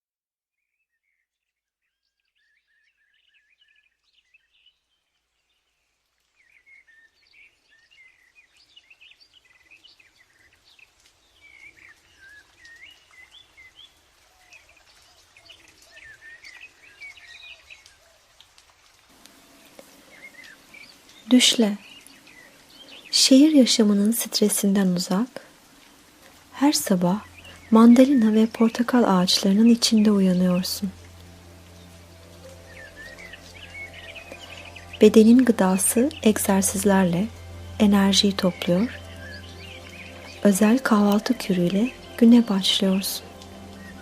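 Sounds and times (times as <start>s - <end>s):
birds chirping and singing: 19.3s - 23.1s, 26.7s - 44.0s.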